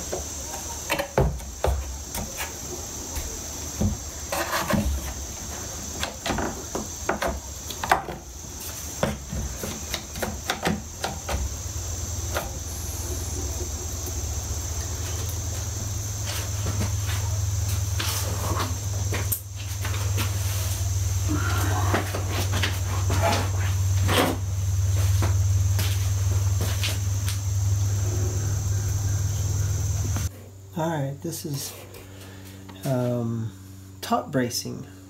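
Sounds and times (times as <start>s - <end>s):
low hum: 10.8s - 30.7s
steady high-pitched tone: 11.7s - 17.7s.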